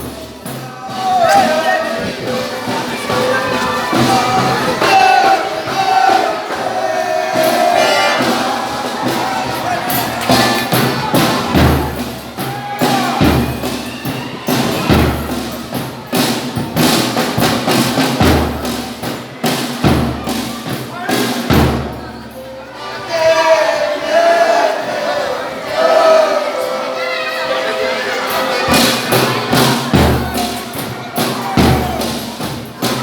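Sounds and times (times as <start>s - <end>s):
voices singing: 0.0s - 15.1s, 22.4s - 33.0s
deep drum beats: 0.0s - 22.1s, 28.6s - 33.0s.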